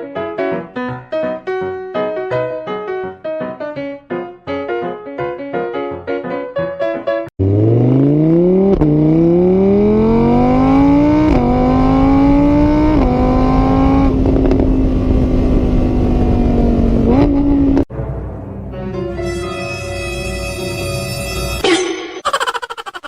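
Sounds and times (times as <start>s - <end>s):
car engine accelerating: 7.4s - 17.9s.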